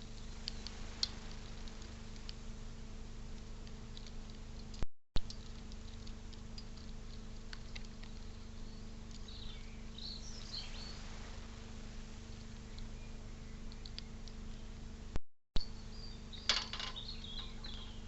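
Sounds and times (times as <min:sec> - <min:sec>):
low electrical hum: 0:00.0 - 0:18.0
small bird chirps: 0:07.7 - 0:14.8, 0:15.6 - 0:18.0.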